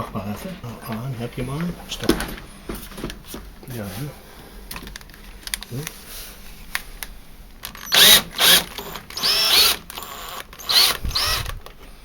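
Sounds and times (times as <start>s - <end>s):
power drill motor whining: 7.7s - 11.7s.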